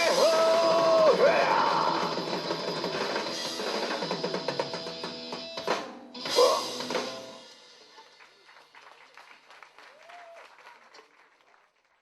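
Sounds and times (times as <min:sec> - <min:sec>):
live rock band: 0:00.0 - 0:07.8
drums and cymbals pounding: 0:00.0 - 0:08.8.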